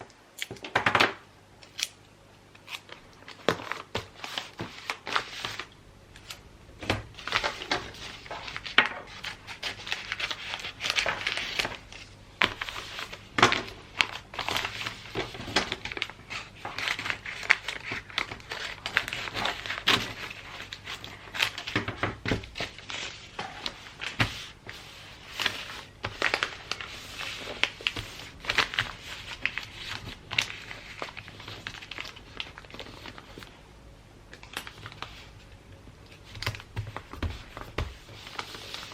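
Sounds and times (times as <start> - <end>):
wrapping paper crinkling: 7.1 - 33.6, 34.4 - 35.5, 36.1 - 38.9.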